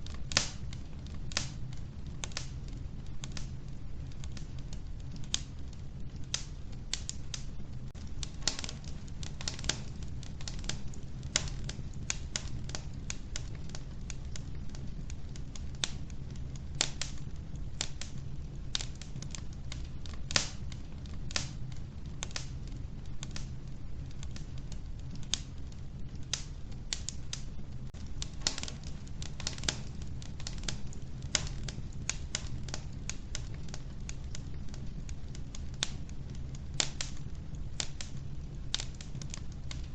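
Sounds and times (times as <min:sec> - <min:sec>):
low rumble of burning: 0:00.0 - 0:39.9
wood fire pops and snaps: 0:00.0 - 0:39.9.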